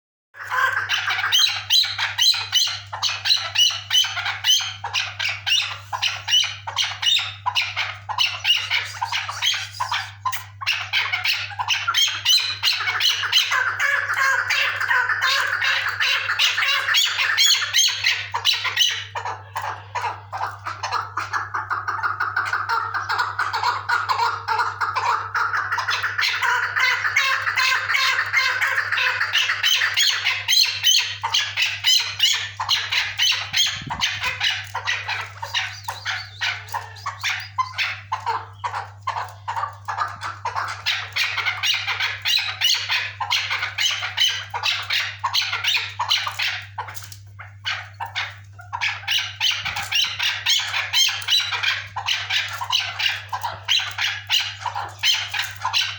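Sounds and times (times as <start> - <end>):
partridge calling: 0.4 - 55.9.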